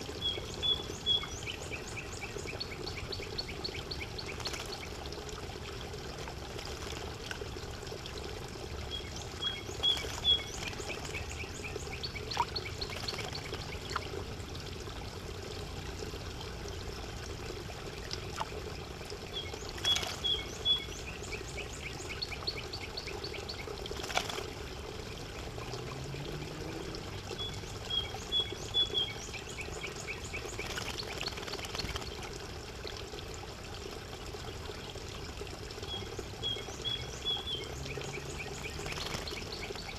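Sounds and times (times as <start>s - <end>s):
bird singing a trill: 0.2s - 4.1s, 8.9s - 13.9s, 19.3s - 23.6s, 27.4s - 31.1s, 35.8s - 39.9s.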